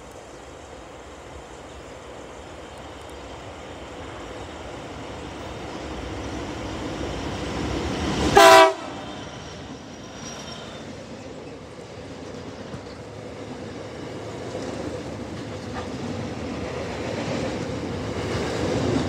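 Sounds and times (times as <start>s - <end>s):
diesel locomotives rumbling: 0.0s - 19.0s
train horn blast: 8.4s - 9.1s.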